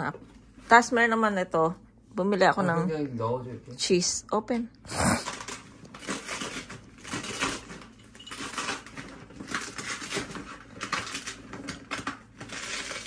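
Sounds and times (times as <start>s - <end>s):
packaging rustling and crackling: 5.0s - 13.0s.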